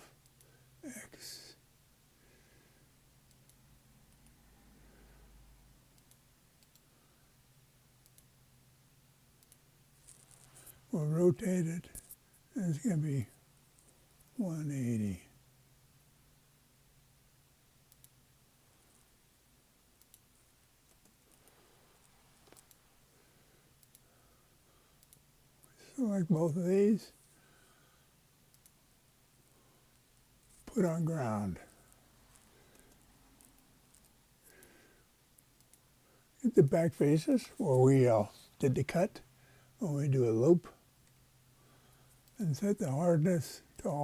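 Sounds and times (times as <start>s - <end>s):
low steady hum: 0.0s - 44.0s
faint computer clicks: 5.9s - 6.9s, 17.9s - 18.2s, 20.9s - 22.8s, 28.5s - 28.8s.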